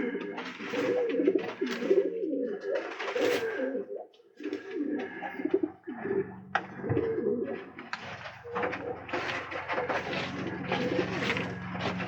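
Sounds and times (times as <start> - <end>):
pigeons cooing: 0.0 - 12.0
wing flaps and scuffling: 7.6 - 12.0.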